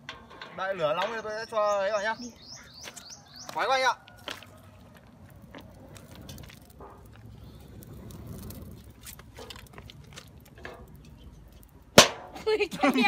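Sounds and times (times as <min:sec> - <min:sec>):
fire crackling and snapping: 0:02.8 - 0:13.0.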